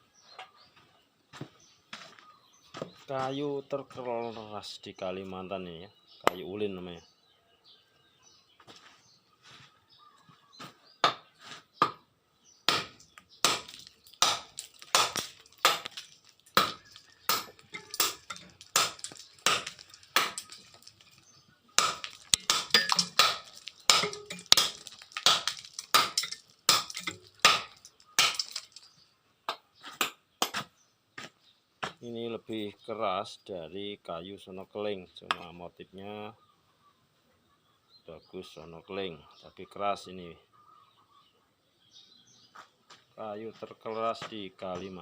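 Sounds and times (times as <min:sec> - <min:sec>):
blade chopping into wood: 0:12.7 - 0:21.0, 0:21.8 - 0:28.7.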